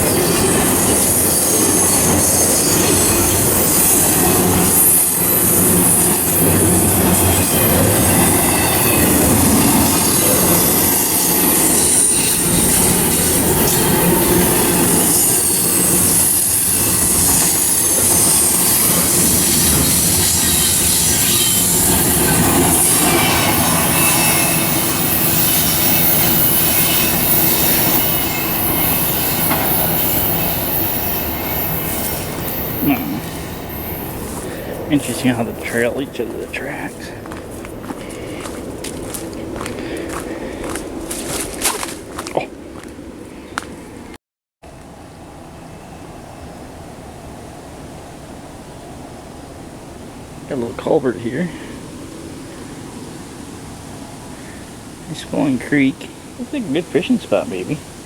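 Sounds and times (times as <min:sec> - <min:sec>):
high-pitched wheel squeal: 0:00.0 - 0:34.9
train wheels rumbling on rail: 0:00.0 - 0:44.1.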